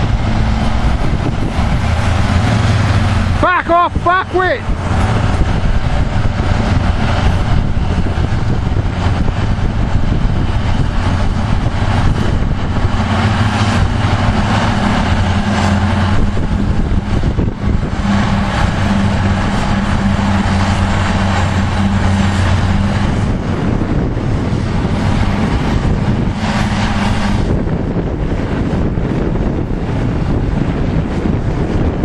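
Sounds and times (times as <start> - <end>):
diesel engines running hard: 0.0 - 32.0.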